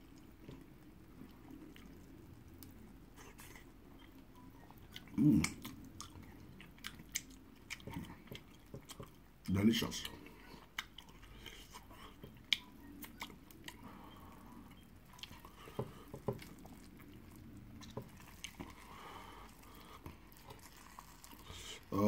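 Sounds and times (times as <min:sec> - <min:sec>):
faint chewing: 0:00.0 - 0:21.9.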